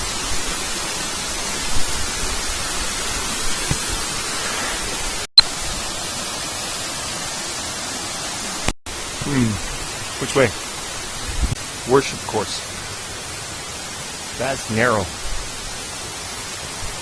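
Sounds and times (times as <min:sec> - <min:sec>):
waterfall rushing: 0:04.9 - 0:17.0.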